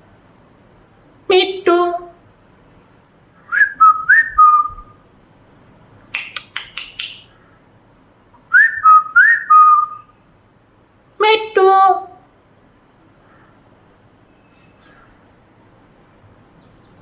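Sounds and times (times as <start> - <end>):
whistled phrase: 3.5 - 5.0, 8.5 - 10.1.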